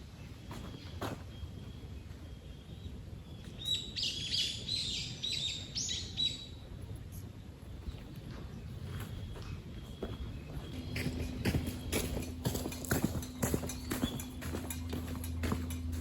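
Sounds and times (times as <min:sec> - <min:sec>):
faint outdoor background noise: 0:00.0 - 0:16.0
songbird chirps: 0:00.0 - 0:16.0.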